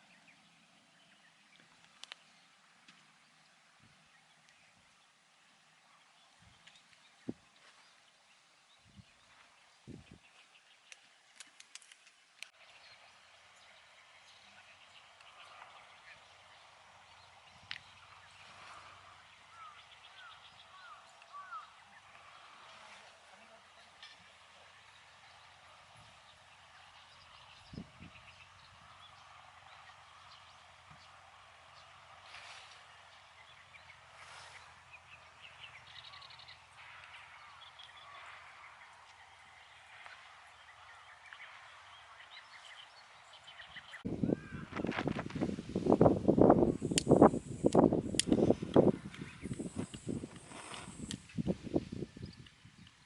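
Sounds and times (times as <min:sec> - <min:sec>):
faint outdoor ambience: 0:00.0 - 0:53.0
bird calls: 0:05.8 - 0:44.9, 0:48.8 - 0:51.4.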